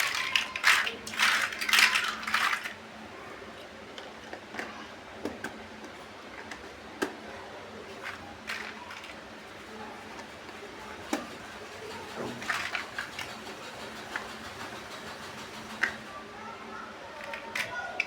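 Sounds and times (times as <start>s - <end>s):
plastic bricks clattering: 0.0s - 2.8s, 7.9s - 9.3s, 11.0s - 14.3s, 17.2s - 18.0s
plastic pieces clicking: 0.0s - 2.8s, 8.0s - 9.2s, 12.3s - 13.5s, 17.2s - 18.0s.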